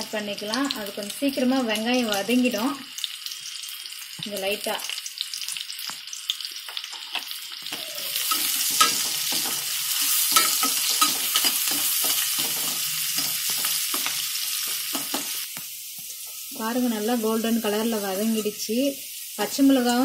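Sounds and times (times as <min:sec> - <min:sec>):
onions sizzling in hot oil: 0:00.0 - 0:20.0
metal spoon scraping a pan: 0:08.0 - 0:15.4.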